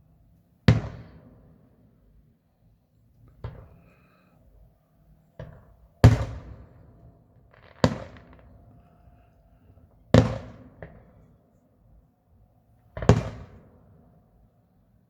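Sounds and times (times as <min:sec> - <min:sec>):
fireworks bursting: 0:07.5 - 0:08.8.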